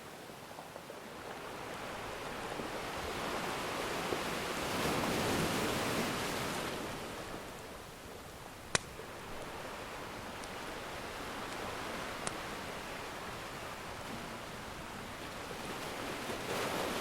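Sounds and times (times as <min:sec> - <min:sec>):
wood fire pop: 0:08.7 - 0:09.0.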